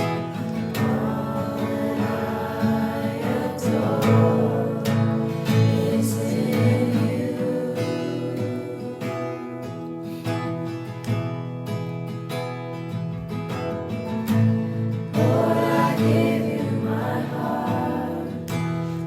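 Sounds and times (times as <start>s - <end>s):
voices singing together: 0.0s - 9.8s, 15.0s - 19.0s
acoustic guitar strumming: 0.0s - 19.0s.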